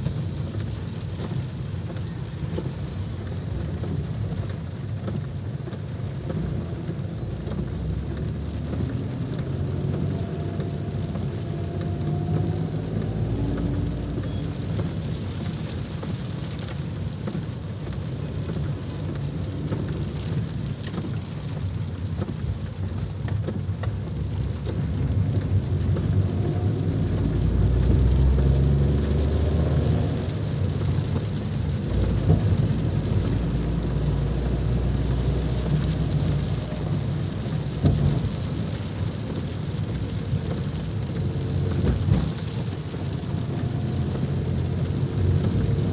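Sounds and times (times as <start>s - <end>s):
low background rumble: 0.0s - 45.9s
steady rain: 0.0s - 45.9s
louder low rumble: 7.8s - 15.0s.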